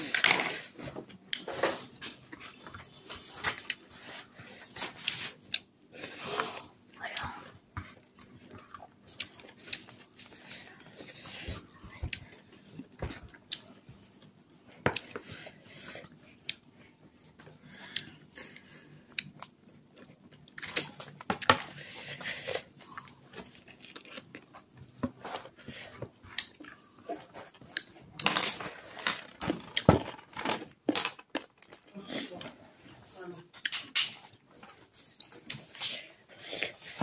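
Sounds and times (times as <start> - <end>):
person chewing food: 0.0 - 32.0, 33.6 - 37.0.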